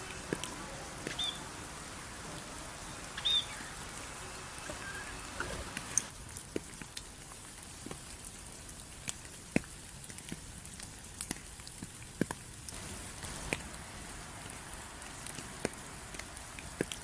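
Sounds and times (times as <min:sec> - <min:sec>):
steady rain hiss: 0:00.0 - 0:17.0
heavy raindrops ticking: 0:10.2 - 0:17.0.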